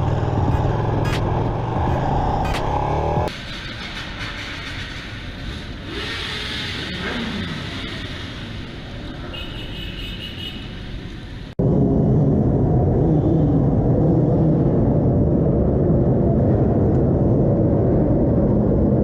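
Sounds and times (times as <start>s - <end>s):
road traffic: 0.0s - 19.0s
vehicle engine noise: 0.0s - 19.0s.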